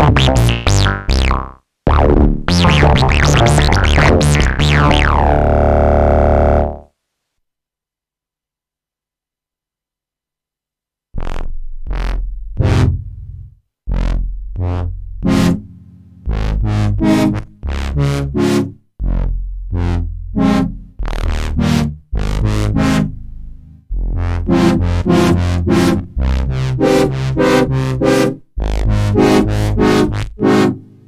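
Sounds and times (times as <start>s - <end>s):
bright plucked synth stabs: 0.0s - 6.8s
deep synth bass notes: 0.0s - 6.9s, 11.2s - 30.7s.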